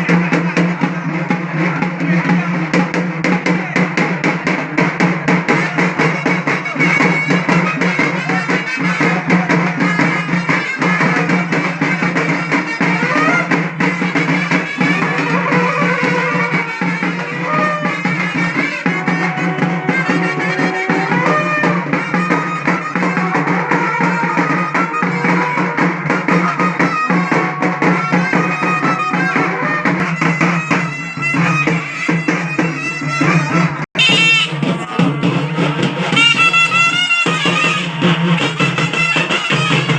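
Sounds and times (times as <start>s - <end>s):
drums beating fast rhythm: 0.0s - 39.9s
reed wind instrument melody: 5.6s - 39.9s.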